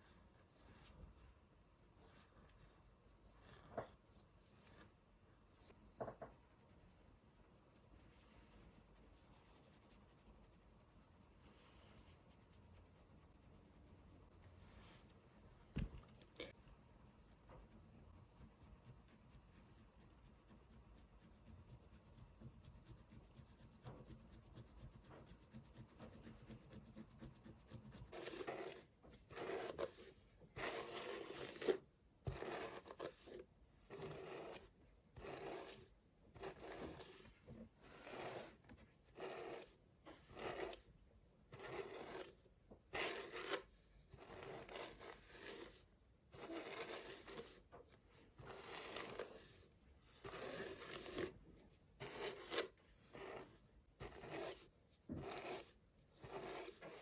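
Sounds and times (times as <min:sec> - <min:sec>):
hairbrush scraping through hair: 0:28.1 - 0:33.4, 0:46.4 - 0:47.7, 0:48.4 - 0:49.6, 0:54.0 - 0:57.0.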